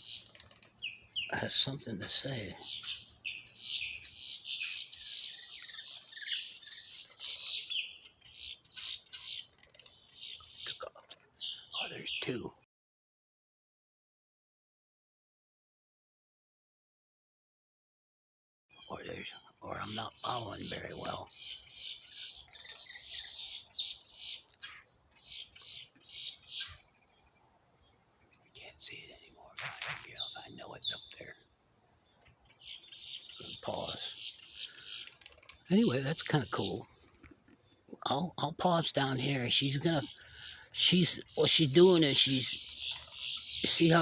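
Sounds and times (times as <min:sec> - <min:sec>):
birds squawking harshly: 0:00.0 - 0:12.5, 0:18.7 - 0:27.1, 0:28.6 - 0:31.5, 0:32.1 - 0:44.0
bird giving sharp high calls: 0:32.6 - 0:35.2.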